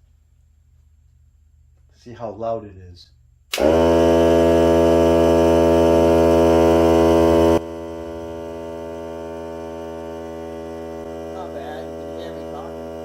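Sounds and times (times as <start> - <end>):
air compressor humming: 3.5 - 13.0.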